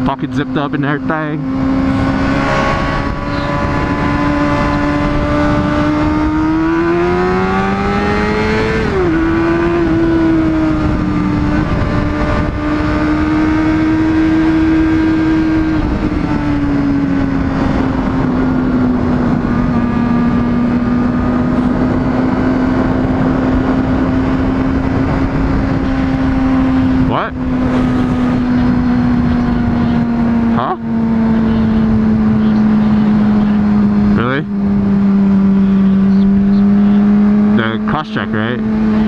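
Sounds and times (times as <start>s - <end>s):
motorcycle engine revving high: 0.0s - 39.0s
wind rushing: 1.4s - 37.4s.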